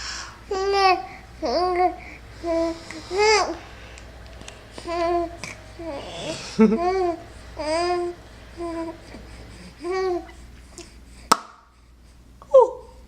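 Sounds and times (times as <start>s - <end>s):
baby cooing: 0.5s - 3.6s, 4.8s - 11.0s.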